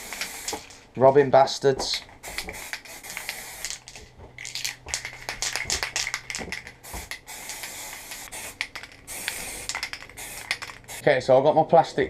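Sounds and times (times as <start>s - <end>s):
aerosol can spraying: 0.0s - 0.8s, 2.2s - 11.0s.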